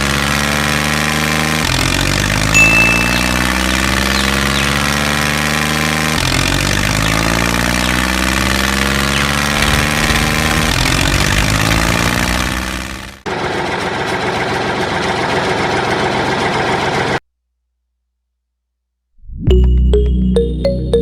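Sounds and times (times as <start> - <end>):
diesel tractor engine idling: 9.1 - 17.2.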